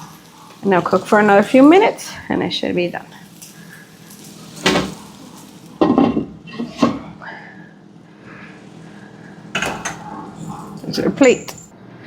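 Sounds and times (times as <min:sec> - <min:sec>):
dishes and pots clattering: 0:05.8 - 0:07.1, 0:09.5 - 0:11.7.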